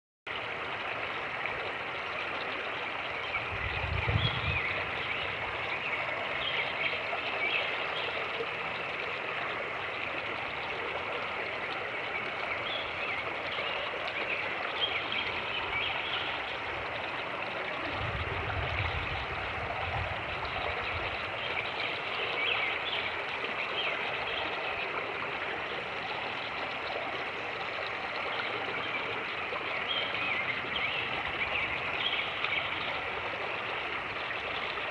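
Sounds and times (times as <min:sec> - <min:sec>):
creek water rushing over rocks: 0:00.3 - 0:34.9
wind buffeting microphone: 0:03.4 - 0:05.6, 0:17.8 - 0:21.4.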